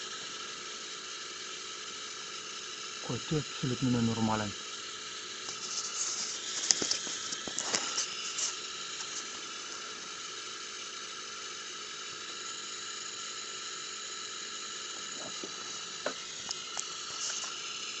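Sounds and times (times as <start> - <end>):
high-pitched whistling hiss: 2.4 - 4.6.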